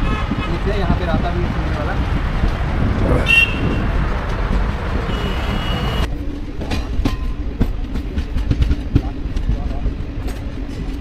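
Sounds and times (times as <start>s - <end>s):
dull train rumble with hum: 0.0s - 11.0s
train wheels clacking on rails: 6.6s - 11.0s.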